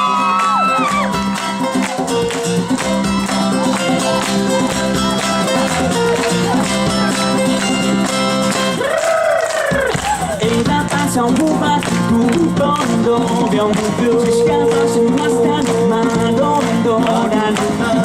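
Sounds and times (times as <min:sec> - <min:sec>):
audience shrieks: 0:00.0 - 0:01.2, 0:08.8 - 0:10.4
acoustic guitar strumming: 0:00.0 - 0:08.8, 0:09.7 - 0:18.0
bass notes: 0:00.0 - 0:08.9, 0:09.7 - 0:18.0.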